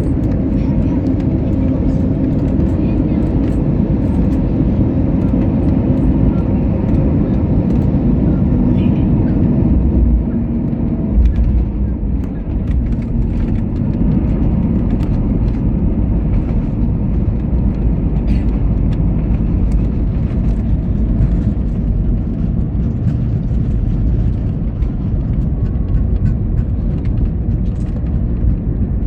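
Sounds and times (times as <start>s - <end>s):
airliner engines rumbling: 0.0s - 29.0s.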